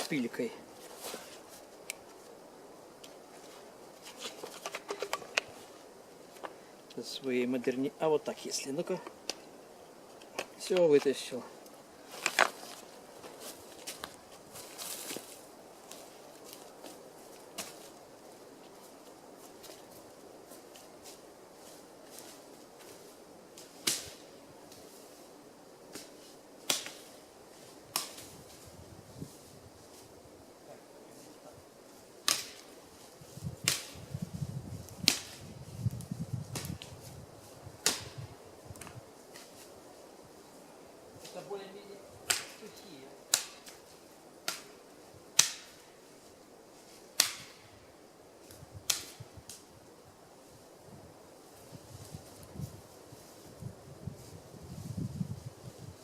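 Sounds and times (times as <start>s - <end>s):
dry firewood cracking: 3.0s - 7.0s, 10.1s - 17.9s, 23.5s - 24.9s, 25.9s - 27.2s, 27.8s - 28.6s, 32.2s - 39.8s, 42.2s - 45.9s, 47.0s - 47.6s, 48.4s - 49.7s
dry wood cracking: 4.0s - 5.7s, 10.1s - 15.3s, 42.2s - 44.8s.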